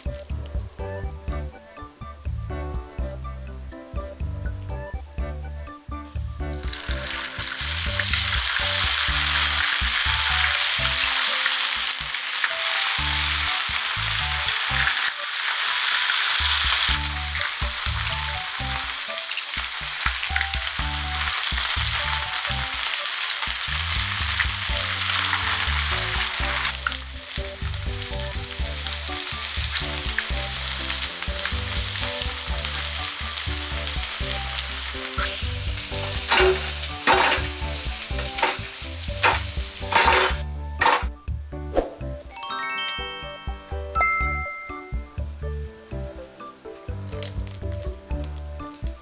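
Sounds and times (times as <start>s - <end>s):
food sizzling in hot oil: 6.1s - 41.2s, 44.7s - 49.0s
utensil clicking against pan: 36.0s - 41.1s.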